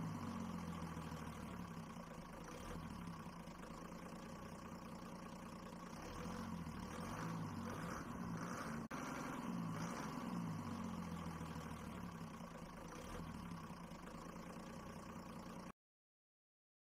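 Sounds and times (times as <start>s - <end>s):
vehicle engine idling: 0.0s - 15.7s.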